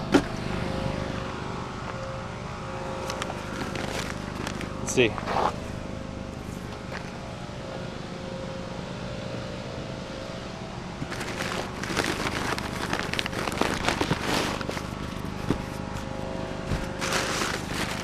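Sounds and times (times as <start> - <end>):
low hum: 0.0 - 18.0
items rustling and rattling: 3.0 - 5.6, 11.0 - 18.0.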